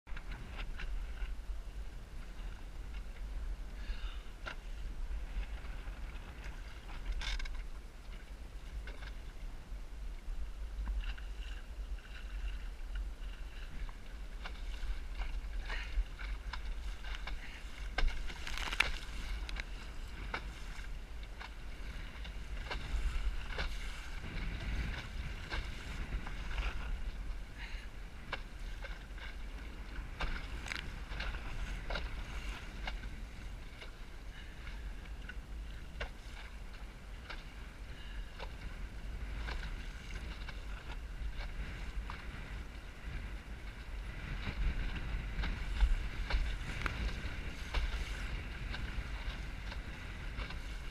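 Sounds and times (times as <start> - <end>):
boat knocks and clicks: 0.1 - 1.3
wind rumbling on microphone: 0.1 - 50.9.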